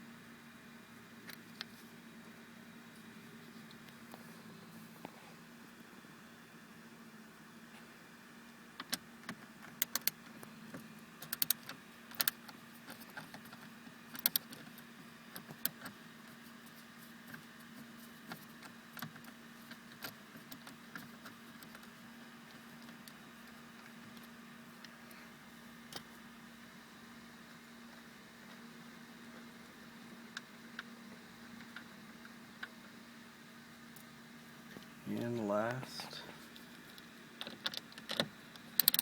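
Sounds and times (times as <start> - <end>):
low steady hum: 0.0 - 39.0
screwdriver clicking on plastic: 37.4 - 39.0.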